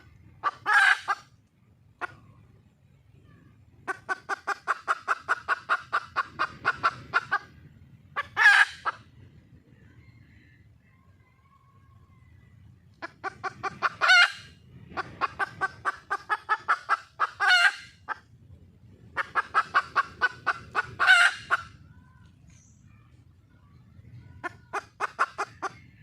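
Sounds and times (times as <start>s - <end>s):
hen cackling and squawking: 0.0s - 1.4s, 2.0s - 2.4s, 3.7s - 9.2s, 12.9s - 18.3s, 19.1s - 21.9s, 24.3s - 26.0s.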